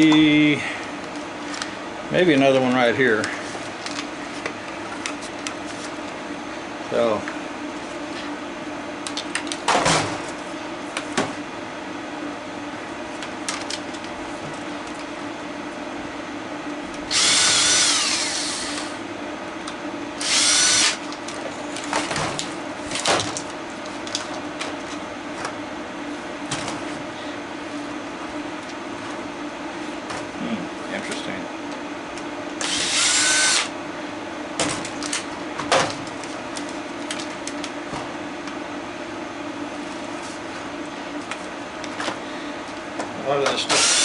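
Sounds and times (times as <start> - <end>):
steady background hum: 0.0 - 44.0
power drill whining: 17.1 - 19.0, 20.2 - 21.0, 32.6 - 33.7, 43.7 - 44.0.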